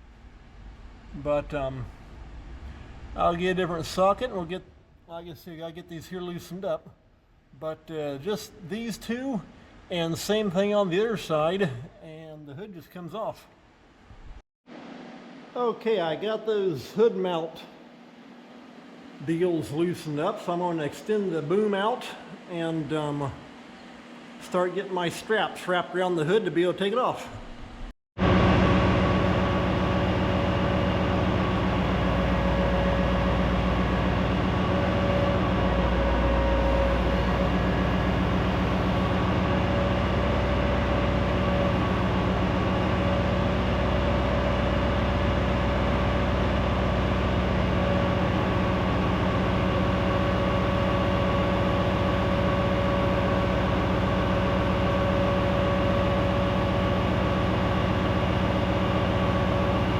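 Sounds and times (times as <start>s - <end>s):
hydraulic whine: 0.0s - 5.1s, 27.4s - 59.9s
truck engine running: 28.2s - 59.9s.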